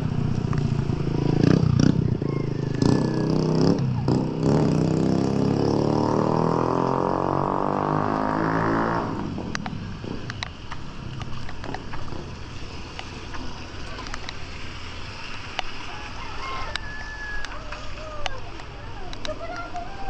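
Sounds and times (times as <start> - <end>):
vehicle engine accelerating: 0.0 - 16.9.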